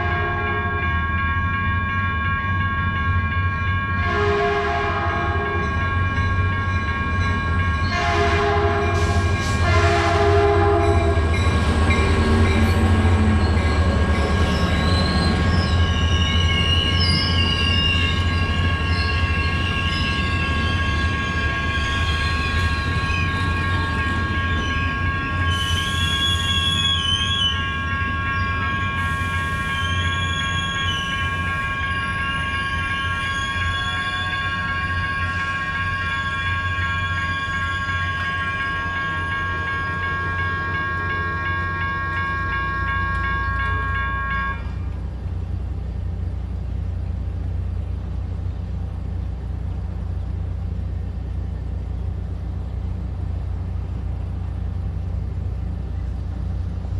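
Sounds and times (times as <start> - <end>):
train horn blasts: 0.0 - 1.0, 4.0 - 5.8, 7.9 - 11.3, 39.3 - 44.9
train rumbling past: 0.0 - 56.9
wheel squeal: 11.9 - 27.8, 29.1 - 34.5.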